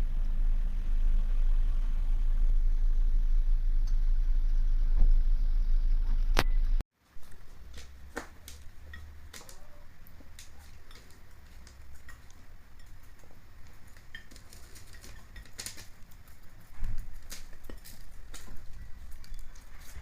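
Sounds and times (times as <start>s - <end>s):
faint low hum: 0.0s - 20.0s
hens pecking at feed: 7.2s - 20.0s.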